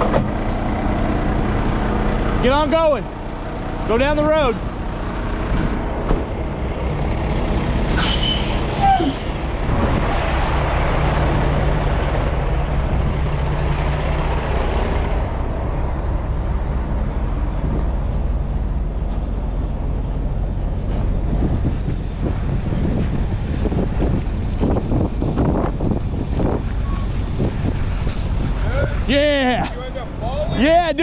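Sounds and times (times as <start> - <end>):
diesel truck engine droning: 0.0 - 31.0
road noise: 0.0 - 31.0
air-brake hiss: 7.8 - 9.6.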